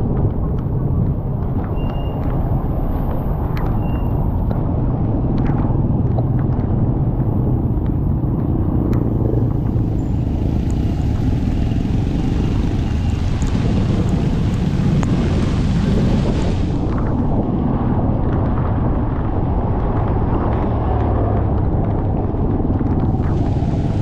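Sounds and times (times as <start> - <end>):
motorcycle engine rumble: 0.0 - 24.0
road noise: 0.0 - 24.0
wind: 0.0 - 24.0
heavy rain: 9.0 - 24.0.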